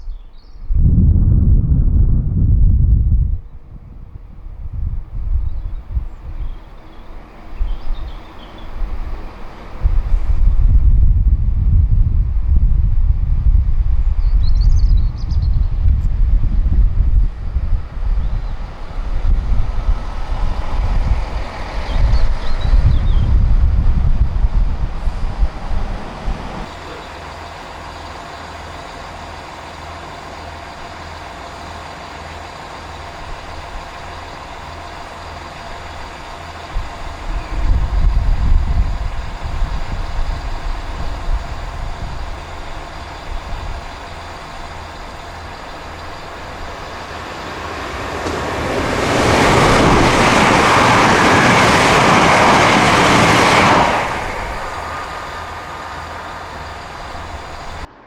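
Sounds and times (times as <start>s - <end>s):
low rumble: 0.0s - 26.8s, 33.0s - 58.0s
diesel train engine running: 0.0s - 58.0s
loud rushing hiss: 15.7s - 58.0s.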